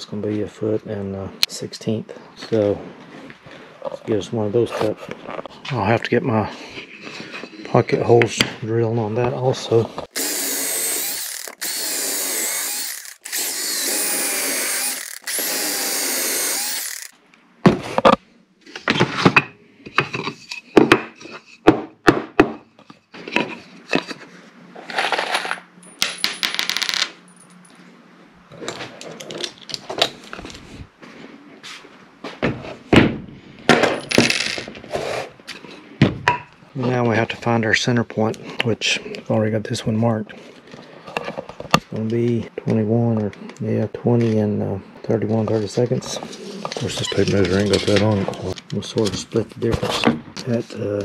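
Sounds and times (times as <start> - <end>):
power drill boring into plywood: 10.1 - 17.1.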